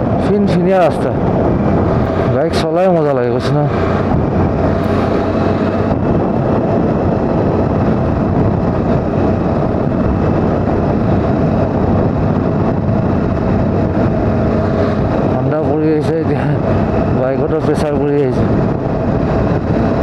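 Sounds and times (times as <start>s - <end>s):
motorcycle engine running: 0.0s - 20.0s
wind and road noise: 0.0s - 20.0s.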